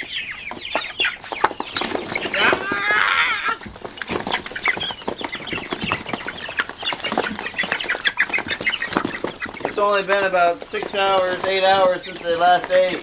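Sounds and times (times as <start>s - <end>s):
chicken warbling call: 0.0s - 9.6s
beaks pecking at feed: 0.0s - 13.0s
chickens peeping and clucking: 0.0s - 13.0s.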